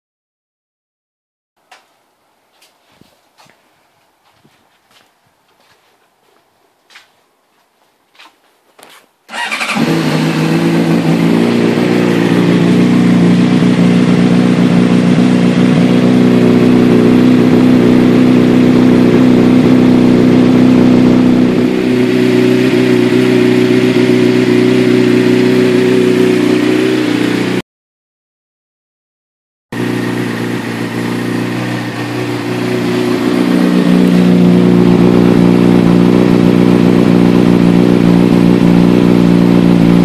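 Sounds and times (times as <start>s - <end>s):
motorcycle engine idling: 9.3s - 27.6s, 29.8s - 40.0s.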